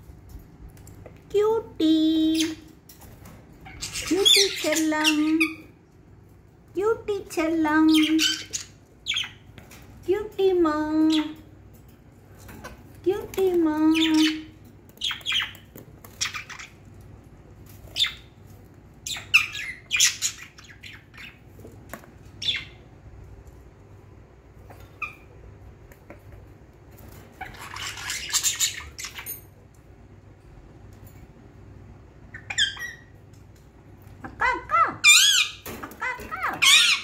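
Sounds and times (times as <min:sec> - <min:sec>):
budgerigars chirping and squawking: 0:02.3 - 0:05.8, 0:07.7 - 0:09.6, 0:13.8 - 0:17.0, 0:17.7 - 0:21.6, 0:22.2 - 0:22.9, 0:24.6 - 0:25.4, 0:27.1 - 0:29.4, 0:32.3 - 0:33.2, 0:34.3 - 0:37.0.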